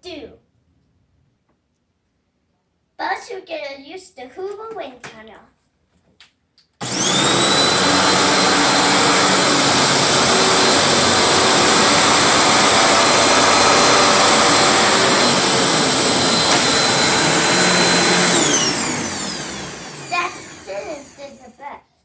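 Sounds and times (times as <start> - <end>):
vacuum cleaner whining: 6.8 - 21.6.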